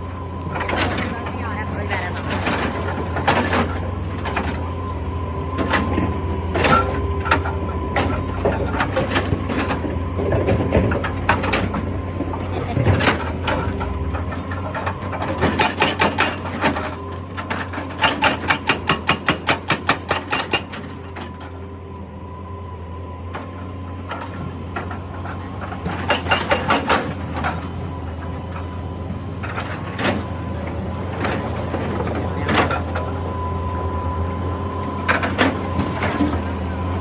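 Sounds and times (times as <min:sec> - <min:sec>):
diesel engine running: 0:00.0 - 0:37.0
hydraulic breaker hammering rock: 0:14.5 - 0:20.9, 0:25.6 - 0:27.6.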